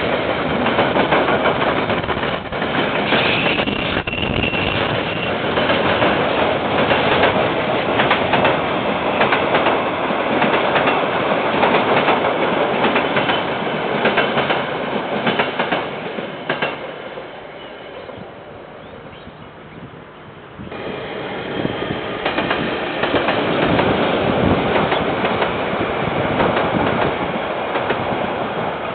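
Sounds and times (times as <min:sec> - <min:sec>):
train wheels clacking over rail joints: 0:00.0 - 0:16.9, 0:22.0 - 0:25.7.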